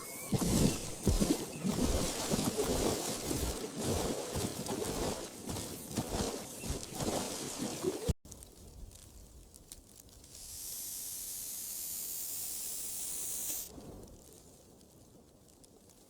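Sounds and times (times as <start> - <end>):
high-pitched hiss: 10.3 - 13.7.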